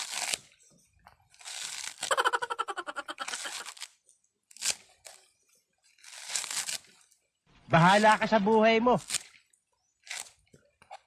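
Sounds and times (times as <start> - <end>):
coconut husk fibres ripping: 0.0 - 0.6, 1.3 - 7.2, 7.8 - 10.5.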